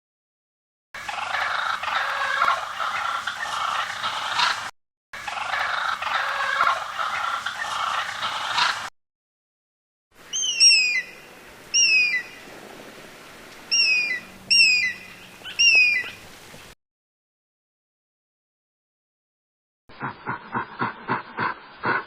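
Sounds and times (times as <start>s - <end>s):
flock of birds gabbling: 1.0s - 8.9s
bird chirping sharply: 10.3s - 12.4s, 13.7s - 16.2s.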